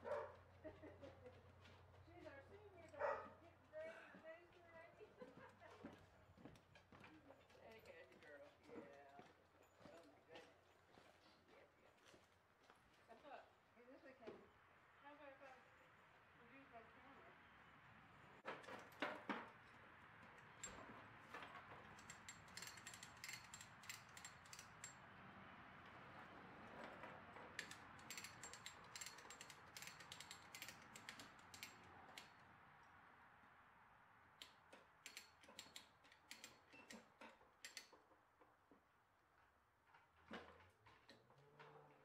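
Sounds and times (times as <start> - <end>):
faint ratchet clicking: 21.9 - 25.0, 27.6 - 32.4, 34.4 - 38.0.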